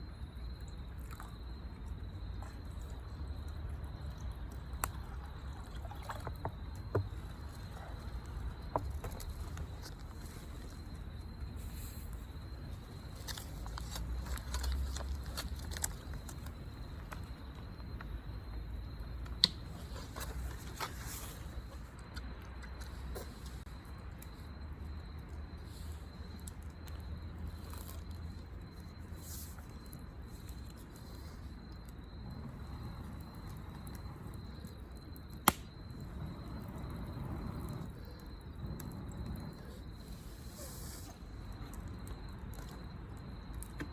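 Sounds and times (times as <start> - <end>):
low fire rumble: 0.0 - 43.9
wood fire crackling: 0.0 - 43.9
fire pop: 19.2 - 21.8, 32.3 - 41.1
sharp pop: 35.4 - 35.7.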